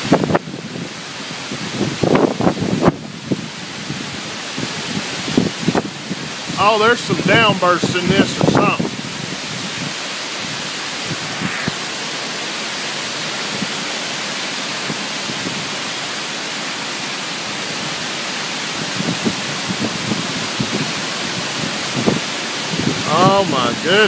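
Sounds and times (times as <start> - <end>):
wind buffeting microphone: 0.0 - 13.9, 18.7 - 24.0
torrential rain pouring: 0.0 - 24.0.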